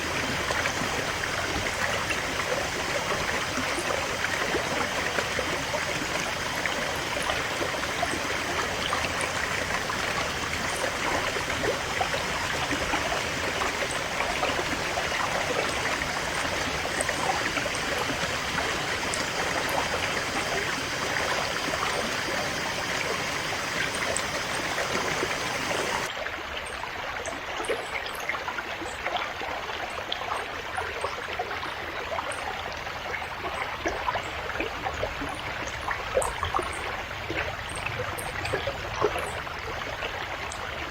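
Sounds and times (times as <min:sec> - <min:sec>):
river flowing over rocks: 0:00.0 - 0:27.0.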